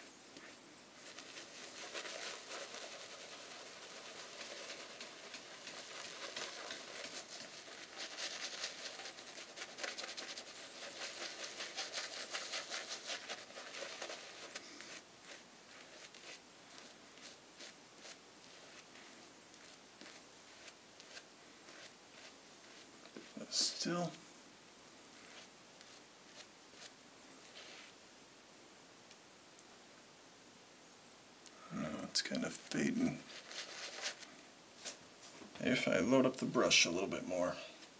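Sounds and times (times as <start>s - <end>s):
shaving brush swishing lather: 0.0s - 24.2s, 25.3s - 28.0s.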